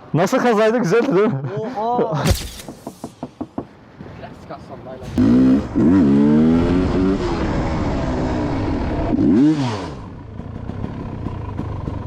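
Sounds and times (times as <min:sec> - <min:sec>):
motorcycle engine revving: 0:05.0 - 0:12.0.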